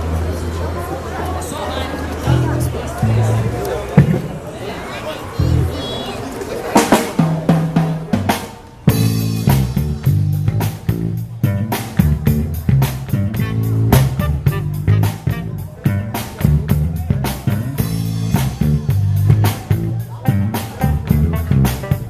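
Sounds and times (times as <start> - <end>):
bass guitar line: 2.2 - 4.6, 5.4 - 5.8, 8.9 - 22.0
drum kit beat: 2.3 - 4.4, 6.8 - 22.0.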